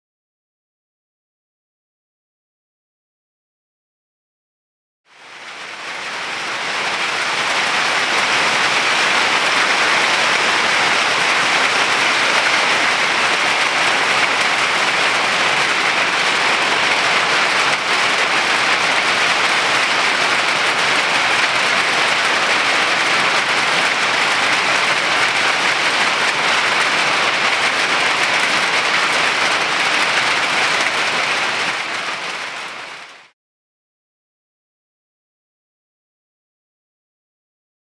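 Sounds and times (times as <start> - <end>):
hail clattering: 5.4 - 33.2.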